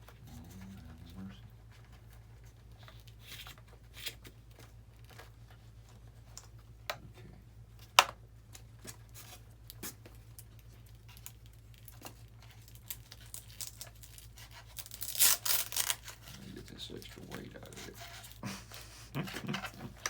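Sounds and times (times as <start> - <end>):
hands handling wiring and parts: 0.0 - 20.0
low steady hum: 0.0 - 20.0.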